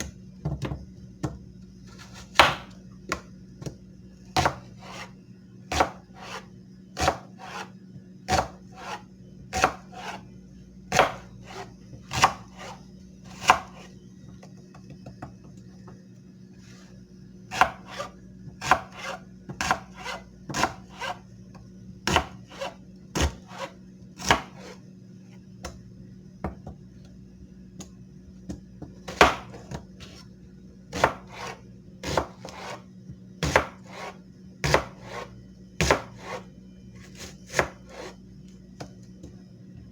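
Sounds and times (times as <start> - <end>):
knife scraping on sharpener: 18.9 - 19.2.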